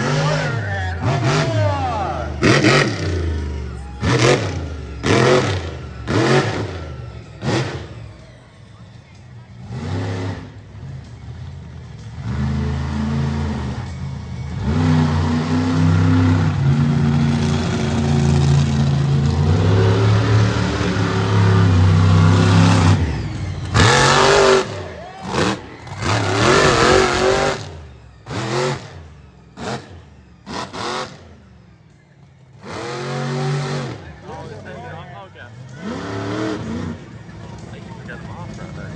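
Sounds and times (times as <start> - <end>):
monster truck engine revving: 0.0 - 38.9.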